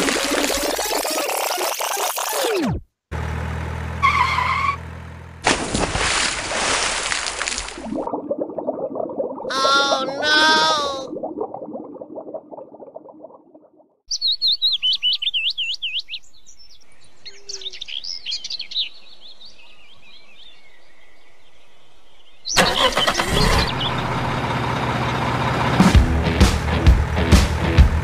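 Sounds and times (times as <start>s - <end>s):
loud engine-like rumble: 3.1s - 5.5s, 22.6s - 28.0s
bird chirping: 14.1s - 24.1s.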